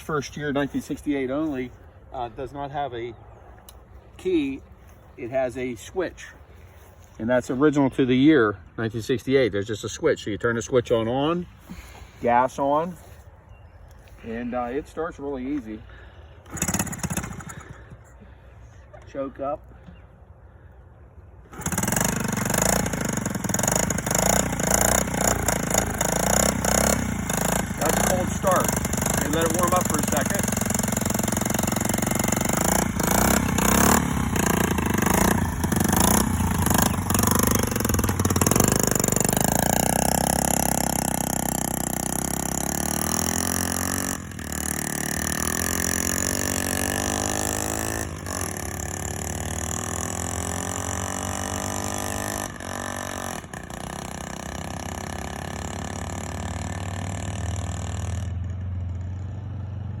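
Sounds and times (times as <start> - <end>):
small motorcycle engine revving: 16.0 - 18.0, 21.4 - 60.0.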